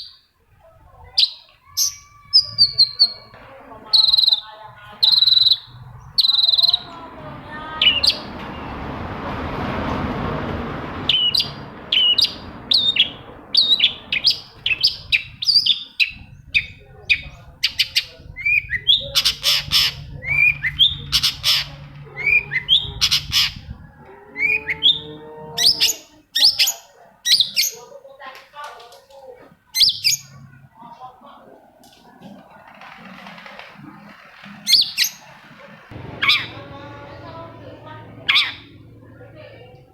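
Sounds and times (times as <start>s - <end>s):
bird giving sharp rapid calls: 3.9s - 8.3s, 11.0s - 23.7s, 34.0s - 36.8s, 38.2s - 38.8s
rushing noise: 5.7s - 15.4s, 33.2s - 39.1s.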